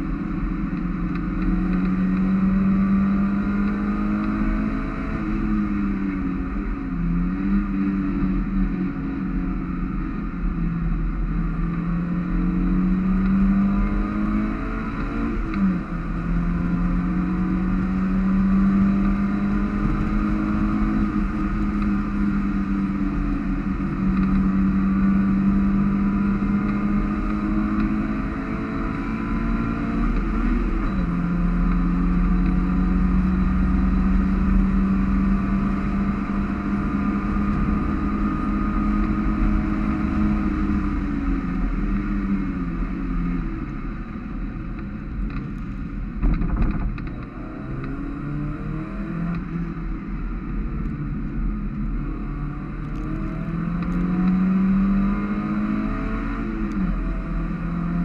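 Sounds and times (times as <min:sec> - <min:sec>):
car engine high-revving drone: 0:00.0 - 0:58.0
road noise: 0:00.0 - 0:58.0
wind noise: 0:44.8 - 0:49.2.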